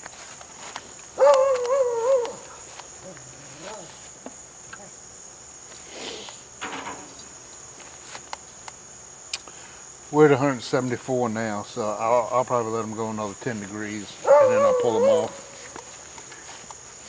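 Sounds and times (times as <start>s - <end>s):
crickets trilling: 0.0s - 17.0s
faint rustles: 13.2s - 17.0s.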